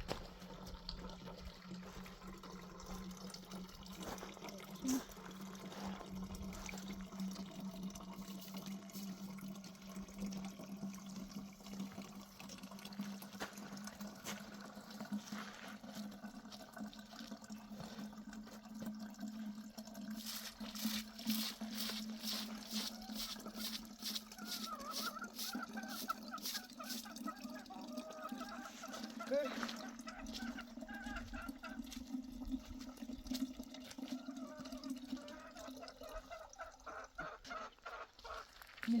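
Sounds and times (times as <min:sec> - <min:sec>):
water running and trickling: 0:00.0 - 0:39.0
short regular strokes: 0:20.2 - 0:27.0.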